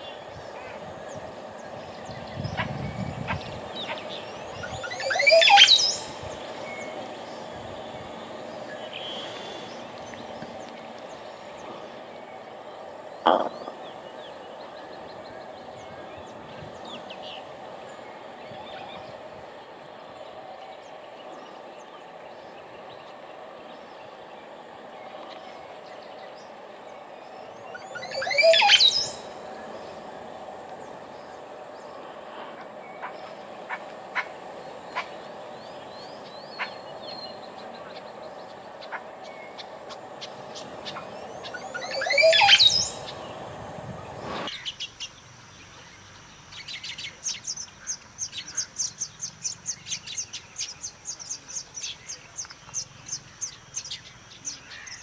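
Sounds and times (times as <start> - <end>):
loud sweeping bird calls: 0.0 - 10.2, 13.2 - 19.1, 25.3 - 30.0, 30.8 - 55.0
faint bird chirps: 8.8 - 10.3.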